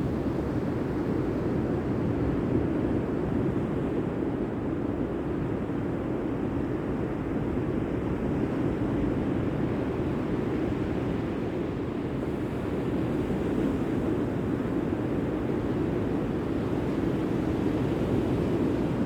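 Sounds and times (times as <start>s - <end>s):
wind: 0.0s - 19.0s.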